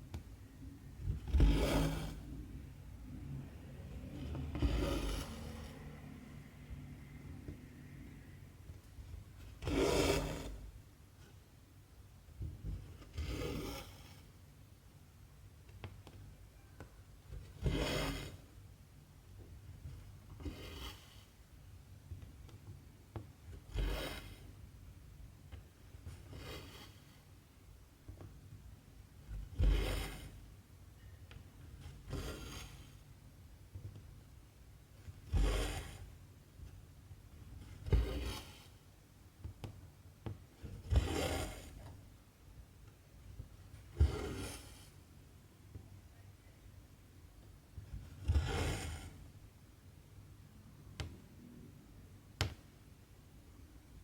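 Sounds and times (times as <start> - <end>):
thread rasping through fabric: 1.0 - 2.6, 3.9 - 6.1, 23.5 - 24.4, 29.2 - 30.4, 31.6 - 33.0, 35.0 - 36.2, 37.4 - 38.8, 40.5 - 42.0, 43.3 - 45.0, 47.8 - 49.3.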